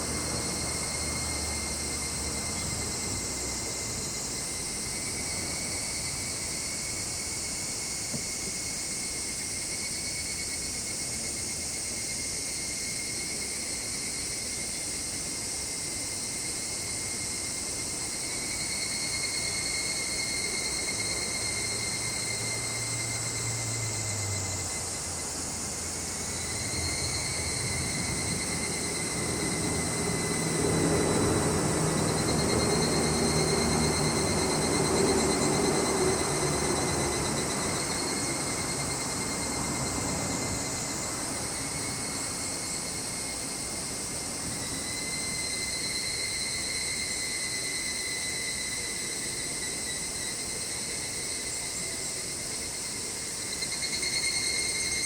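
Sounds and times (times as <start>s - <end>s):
passing engine hum: 0.0s - 5.8s, 20.9s - 44.8s
cicadas and crickets chirring: 0.0s - 55.0s.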